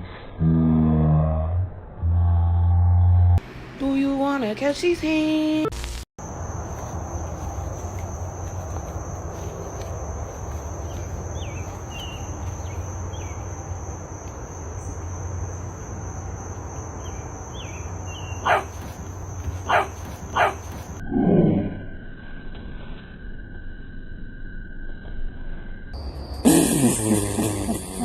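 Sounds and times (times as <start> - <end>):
insect drone: 5.3 - 28.0
faint chirps: 10.3 - 19.8
dog barking: 18.4 - 18.9, 19.6 - 20.8.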